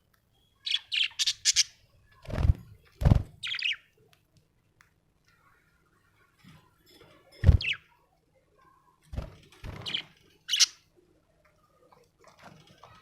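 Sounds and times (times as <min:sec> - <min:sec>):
budgerigar chirping: 0:00.7 - 0:01.8, 0:09.9 - 0:10.8.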